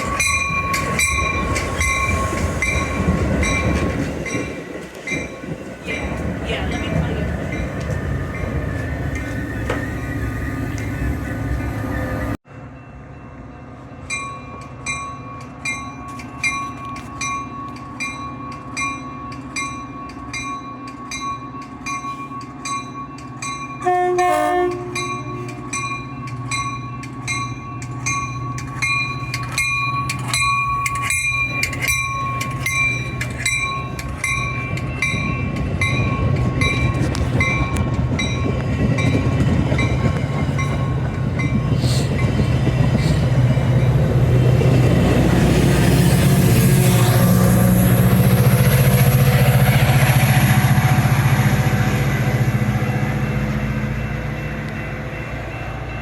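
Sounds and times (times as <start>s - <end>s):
crossing bells ringing: 0.0s - 11.8s, 12.6s - 46.8s, 47.5s - 56.0s
train rumble: 0.0s - 56.0s
train horn: 23.8s - 25.7s.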